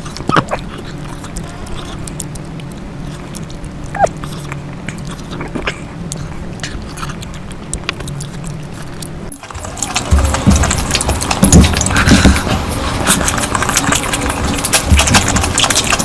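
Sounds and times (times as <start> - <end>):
chewing and mouth clicks: 0.0 - 16.0
steady low hum: 0.0 - 16.0.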